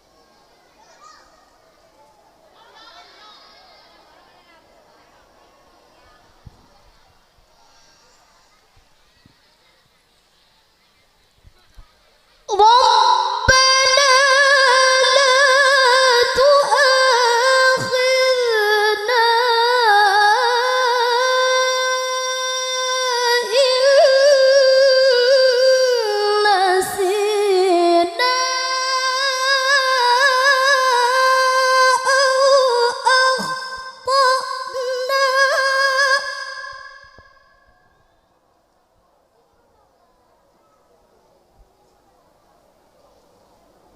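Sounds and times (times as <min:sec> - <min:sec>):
woman chanting melodically: 0:12.5 - 0:37.9.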